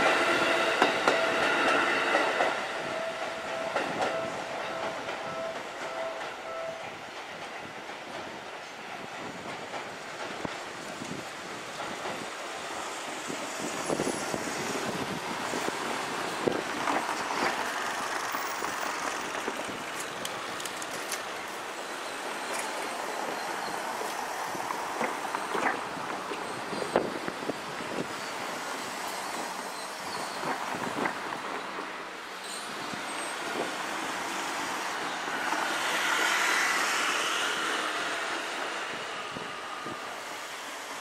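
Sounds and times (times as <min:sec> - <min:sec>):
train wheels rumbling on rail: 0:00.0 - 0:41.0
wheels clicking over rail joints: 0:13.9 - 0:21.7.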